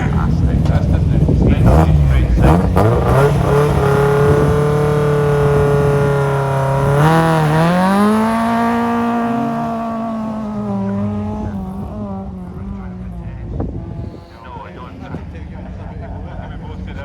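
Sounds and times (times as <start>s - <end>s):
rally car engine accelerating: 0.0s - 17.0s.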